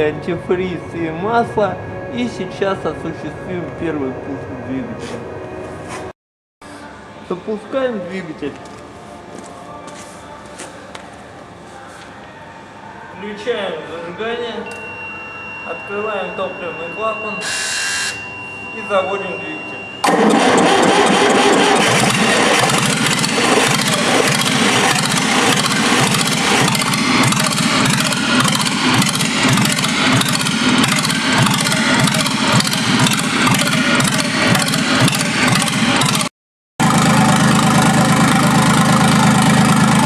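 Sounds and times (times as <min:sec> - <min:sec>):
diesel engine clattering: 0:19.8 - 0:40.0.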